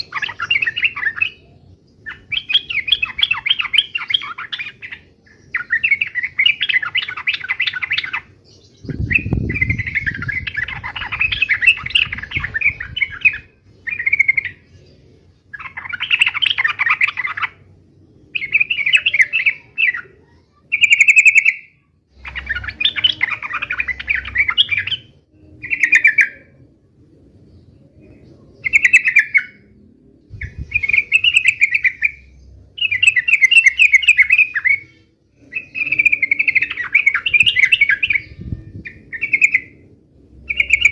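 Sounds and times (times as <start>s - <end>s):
bird chattering song: 0.0s - 26.6s, 27.5s - 40.9s
faint low rumble: 29.6s - 31.2s, 37.3s - 40.9s.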